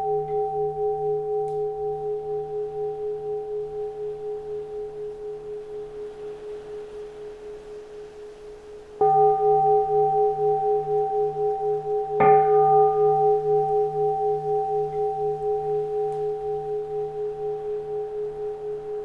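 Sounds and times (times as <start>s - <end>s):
bowl bell ringing: 0.0s - 6.5s, 9.0s - 19.0s.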